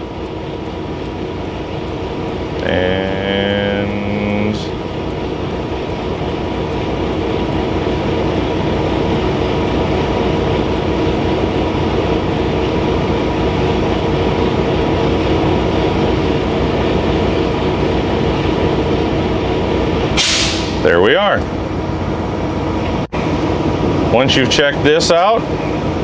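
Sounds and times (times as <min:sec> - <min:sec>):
diesel truck engine running: 0:00.0 - 0:26.0
air compressor building pressure: 0:03.8 - 0:24.6.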